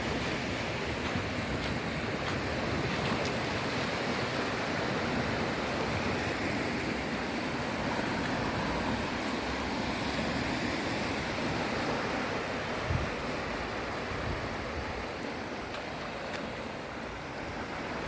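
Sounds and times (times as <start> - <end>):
sea waves washing: 0.0 - 18.0.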